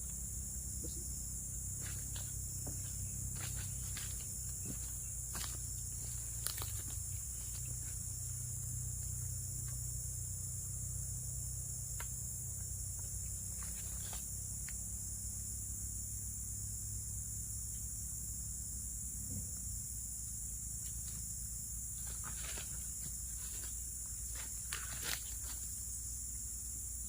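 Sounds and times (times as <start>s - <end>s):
low steady rumble: 0.0s - 24.2s
insects chirring: 0.0s - 27.0s.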